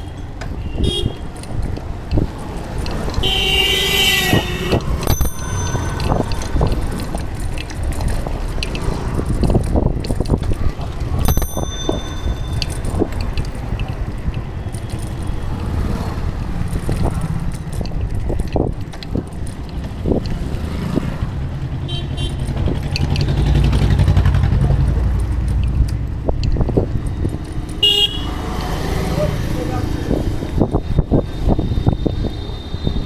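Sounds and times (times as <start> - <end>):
vehicle engine running: 21.3 - 26.2.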